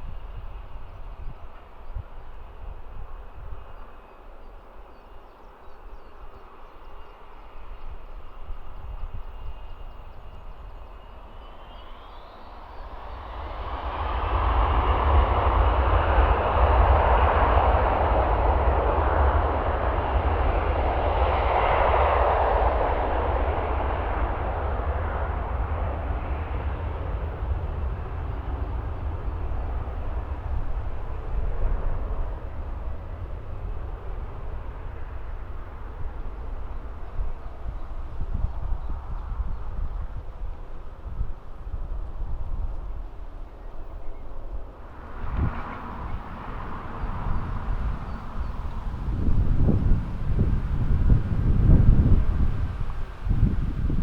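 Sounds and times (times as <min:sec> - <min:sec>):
jet engine whine: 0:00.0 - 0:54.0
jet engine roar: 0:06.2 - 0:54.0.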